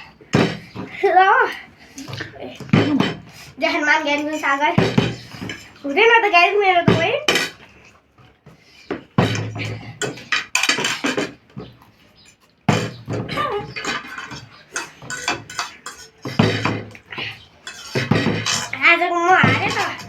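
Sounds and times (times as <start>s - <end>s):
objects knocking on a table: 18.0s - 18.6s.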